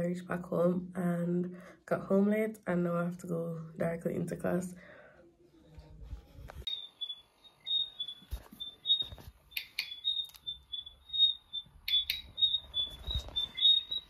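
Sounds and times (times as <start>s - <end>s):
small bird chirping: 6.7s - 14.0s.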